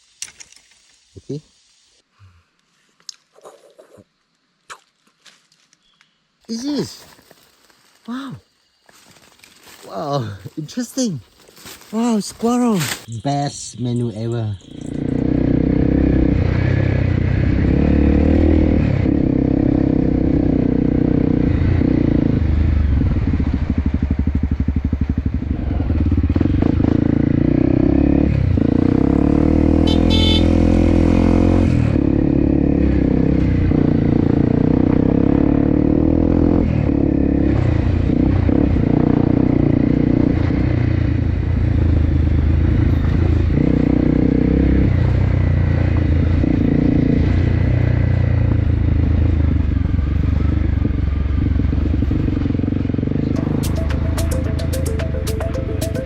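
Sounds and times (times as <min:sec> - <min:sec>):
small engine running: 0:14.6 - 0:16.6.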